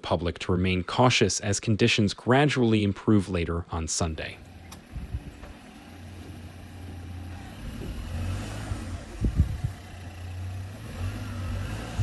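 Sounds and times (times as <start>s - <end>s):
motor vehicle low rumble: 4.2s - 12.0s
sudden low thumps: 9.2s - 9.8s.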